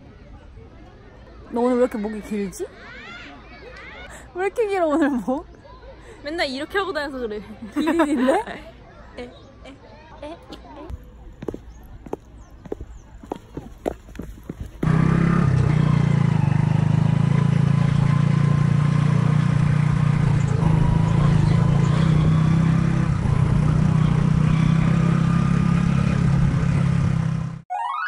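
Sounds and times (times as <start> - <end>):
motorcycle engine running: 14.6 - 27.6.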